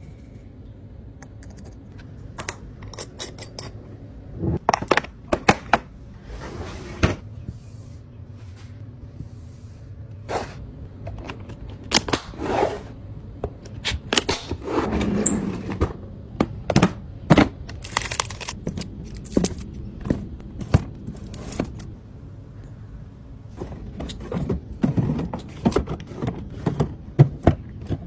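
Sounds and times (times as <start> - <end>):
food containers knocking and clattering: 15.6 - 17.8, 23.6 - 28.0
packaging rustling: 17.7 - 19.7.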